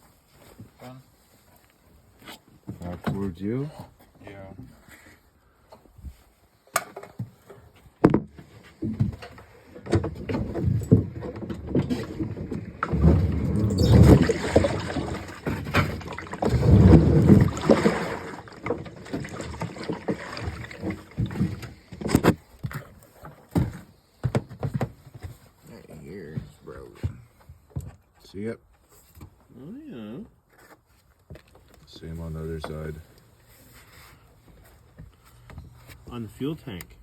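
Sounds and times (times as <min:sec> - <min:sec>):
knocks and clunks: 0:08.0 - 0:25.4
rough scraping rumbles: 0:10.0 - 0:22.4.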